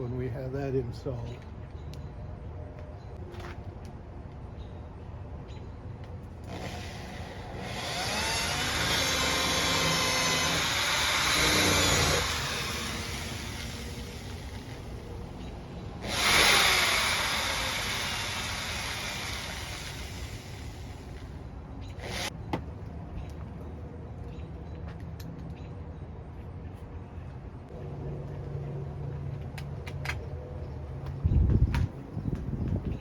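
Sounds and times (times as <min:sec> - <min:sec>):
motor vehicles passing: 0:21.2 - 0:33.0.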